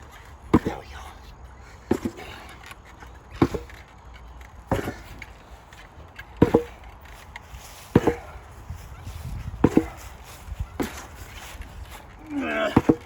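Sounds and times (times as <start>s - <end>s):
sledgehammer striking target: 6.4s - 6.8s.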